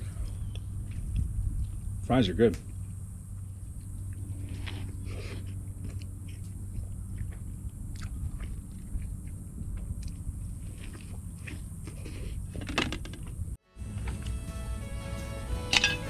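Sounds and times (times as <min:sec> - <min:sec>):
person chewing fries: 0:04.4 - 0:12.3.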